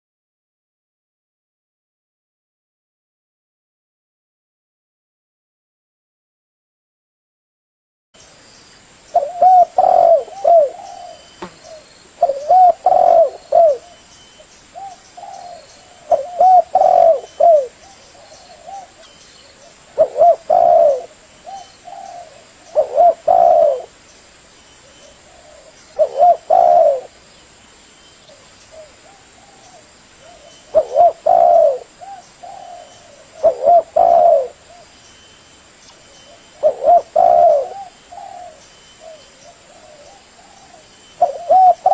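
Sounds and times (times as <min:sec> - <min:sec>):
dove cooing: 0:09.2 - 0:14.0, 0:14.8 - 0:24.0, 0:24.8 - 0:27.2, 0:28.3 - 0:34.9, 0:36.3 - 0:41.9.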